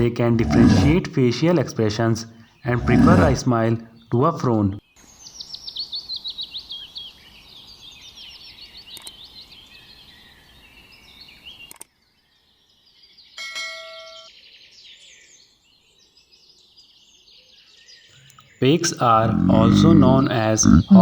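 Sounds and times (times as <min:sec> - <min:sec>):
small songbirds chirping: 0:04.8 - 0:13.4, 0:14.3 - 0:21.0.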